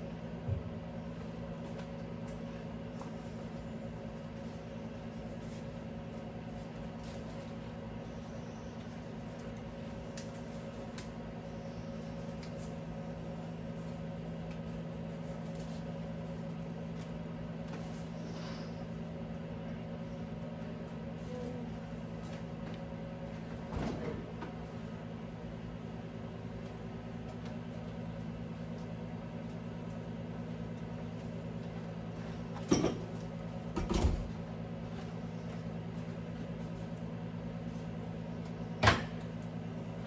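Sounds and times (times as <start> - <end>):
steady low hum: 0.0 - 40.0
refrigerator parts clicking and knocking: 32.5 - 34.5, 38.8 - 39.4.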